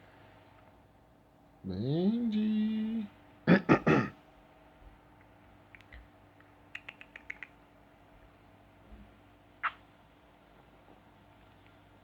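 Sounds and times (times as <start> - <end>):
bird soft clicks: 5.7 - 7.6.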